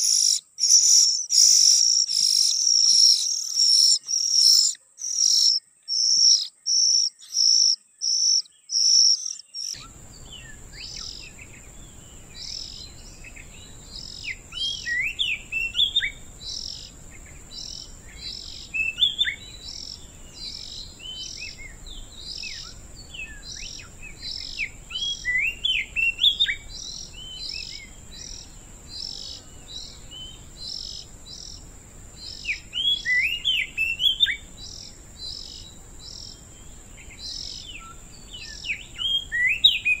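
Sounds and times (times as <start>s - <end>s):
magpie-robins chirping: 0.0s - 29.8s
background hiss: 0.0s - 40.0s
high thin insect-like drone: 9.8s - 40.0s.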